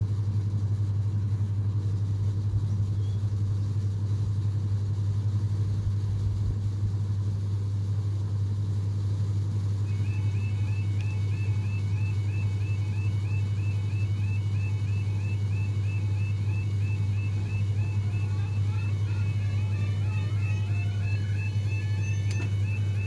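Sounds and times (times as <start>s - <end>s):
level crossing alarm tone: 9.8s - 23.0s.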